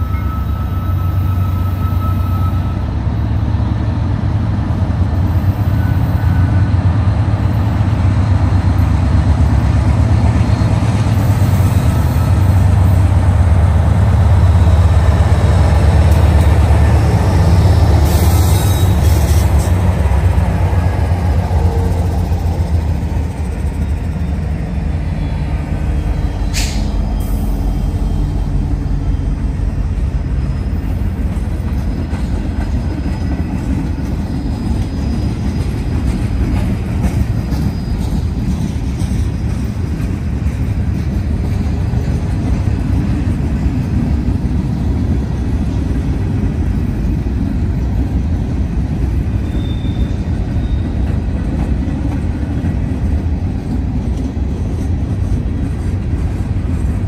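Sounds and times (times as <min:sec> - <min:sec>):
high squeal: 0:00.0 - 0:03.0, 0:17.3 - 0:19.7, 0:25.1 - 0:31.1, 0:49.4 - 0:51.0
diesel locomotive engines droning: 0:00.0 - 0:57.0
freight cars rumbling on rails: 0:00.0 - 0:57.0.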